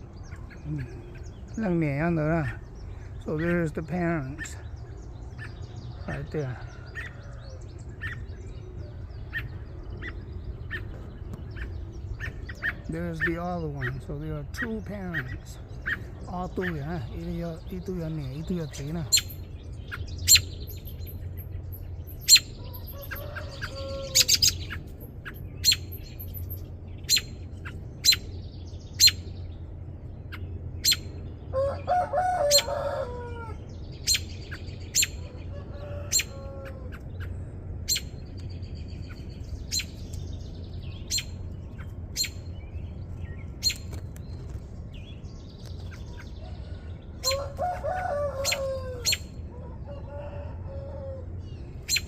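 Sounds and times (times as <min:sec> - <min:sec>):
robins chirping: 0:00.0 - 0:52.0
chickens clucking: 0:22.4 - 0:25.4.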